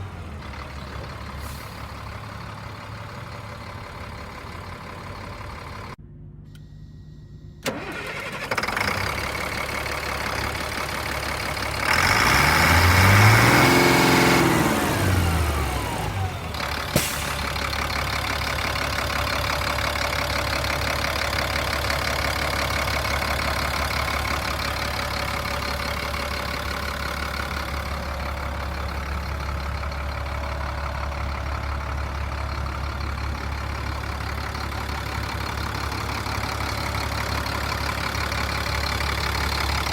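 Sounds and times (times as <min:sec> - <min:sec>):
diesel truck engine revving and idling: 0:00.0 - 0:06.4, 0:07.6 - 0:39.9
click: 0:06.4 - 0:06.7.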